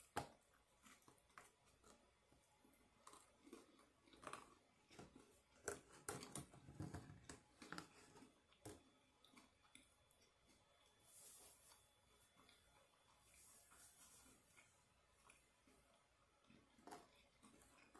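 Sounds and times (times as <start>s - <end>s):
person chewing and biting food: 2.8s - 6.3s, 14.5s - 17.9s.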